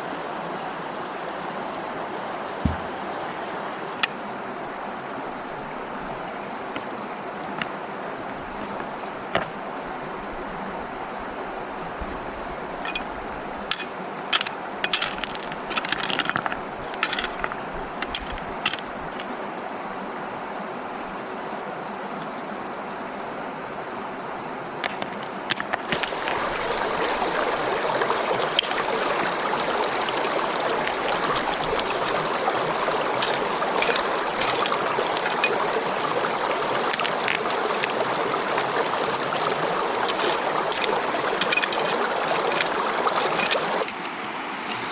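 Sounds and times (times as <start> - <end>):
stream flowing: 0.0 - 44.9
camp gear clicking and rattling: 2.6 - 3.0, 6.0 - 9.7, 12.8 - 19.4, 24.8 - 27.7, 28.4 - 29.4, 30.2 - 44.9.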